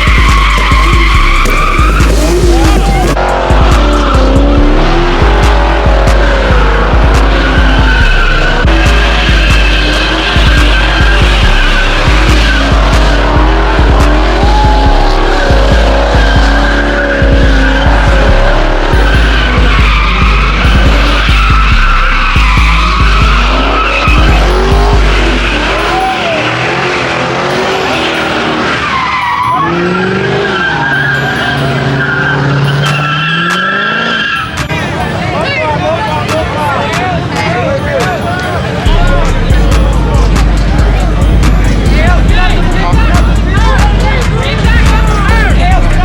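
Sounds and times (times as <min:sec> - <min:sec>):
car engine: 0:00.0 - 0:46.0
car tyres squealing: 0:00.0 - 0:46.0
hip-hop beat with heavy bass: 0:00.0 - 0:46.0.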